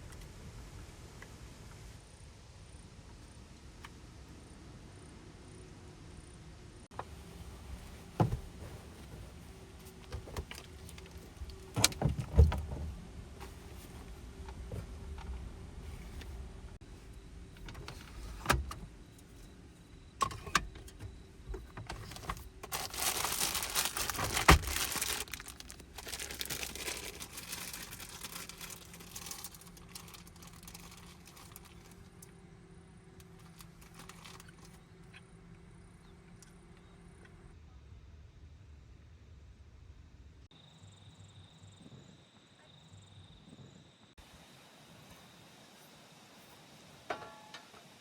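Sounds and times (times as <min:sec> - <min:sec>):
rustling and clatter: 0:07.0 - 0:16.5, 0:21.6 - 0:32.1.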